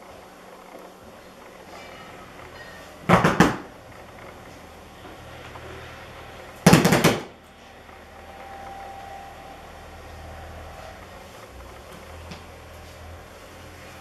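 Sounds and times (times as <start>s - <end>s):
rapid sharp knocks: 3.1s - 3.7s, 6.7s - 7.3s.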